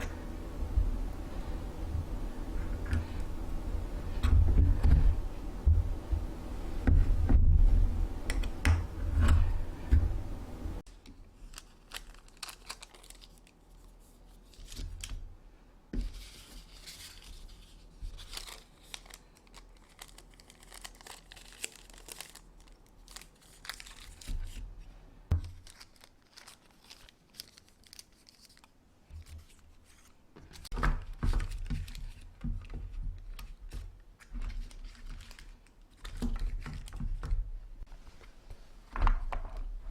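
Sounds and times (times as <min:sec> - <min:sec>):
plastic bags crinkling and tearing: 0:11.4 - 0:15.2, 0:17.1 - 0:24.8, 0:25.4 - 0:28.8, 0:34.2 - 0:37.0.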